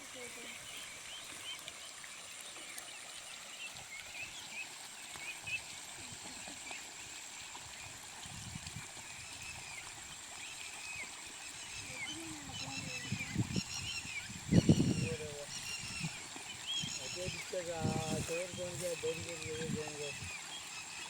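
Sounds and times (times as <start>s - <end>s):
stream water flowing: 0.0s - 21.0s
high chirping calls: 11.6s - 20.4s.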